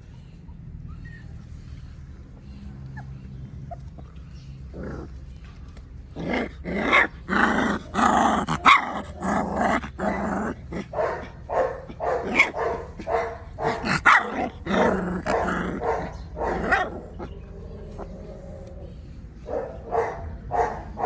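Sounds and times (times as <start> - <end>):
dog barking and growling: 6.1 - 21.0.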